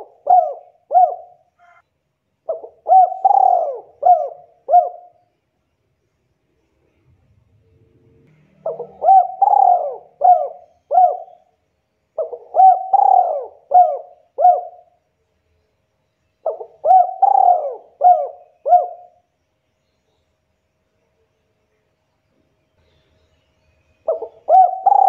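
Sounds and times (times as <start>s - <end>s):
dove cooing: 0.0s - 1.8s, 2.5s - 5.2s, 8.6s - 11.5s, 12.2s - 14.9s, 16.4s - 19.2s, 24.1s - 25.0s.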